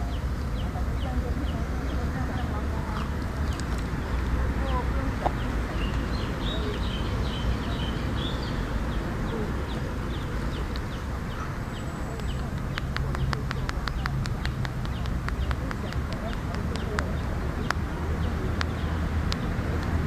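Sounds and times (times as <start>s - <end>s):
low outdoor rumble: 0.0s - 20.0s
rapid light sharp clicks: 12.1s - 20.0s.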